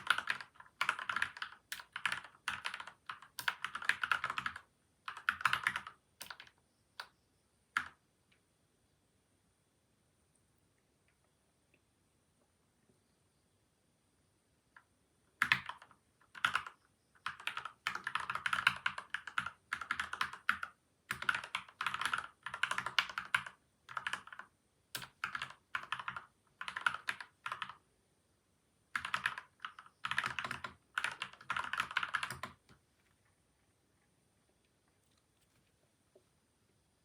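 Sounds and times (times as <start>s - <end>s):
typing on mechanical keyboard: 0.0s - 7.1s, 7.8s - 8.0s, 14.8s - 27.8s, 28.9s - 32.8s.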